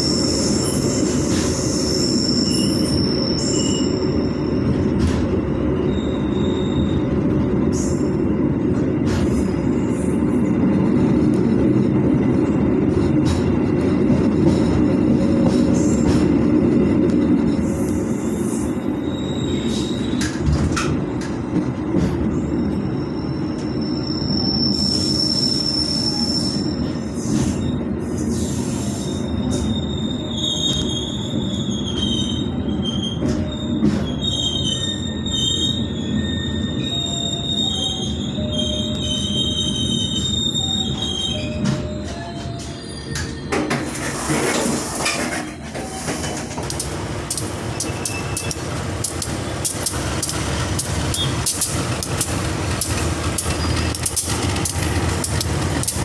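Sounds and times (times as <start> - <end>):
high wavering wheel squeal: 0.0 - 4.9, 5.7 - 7.2, 18.1 - 20.4, 22.4 - 46.5, 47.5 - 48.7, 51.1 - 54.9
train wheels rumbling on rails: 0.0 - 56.0.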